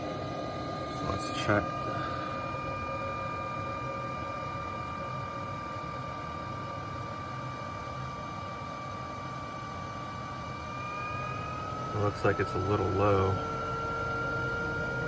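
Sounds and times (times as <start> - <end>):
gas furnace rushing hum: 0.0 - 15.0
high-pitched whine: 10.5 - 15.0.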